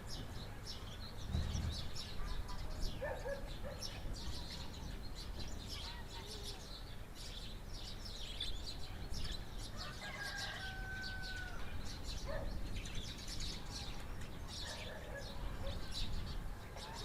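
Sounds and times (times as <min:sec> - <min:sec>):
low rumble of outdoor air: 0:00.0 - 0:17.0
small birds chirping: 0:00.0 - 0:17.0
rooster crowing: 0:09.8 - 0:11.7.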